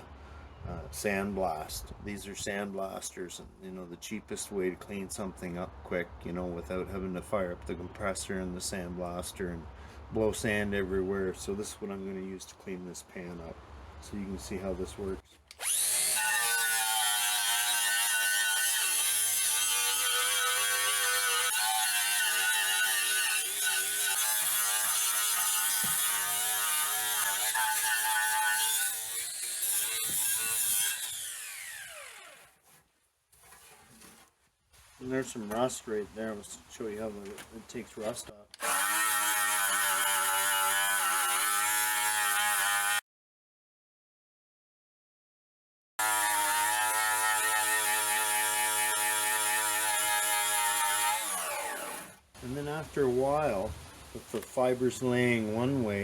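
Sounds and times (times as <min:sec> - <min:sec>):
wire brush grinder whining: 0:15.5 - 0:32.6, 0:38.6 - 0:43.0, 0:46.0 - 0:52.2.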